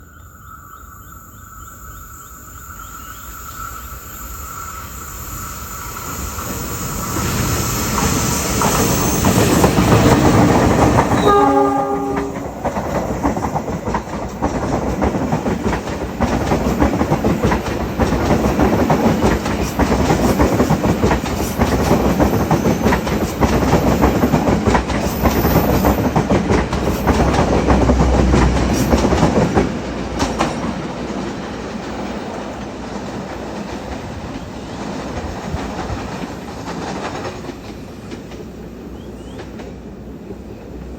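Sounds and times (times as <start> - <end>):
train wheels clattering over rail joints: 6.0 - 39.9
train horn: 11.1 - 12.7.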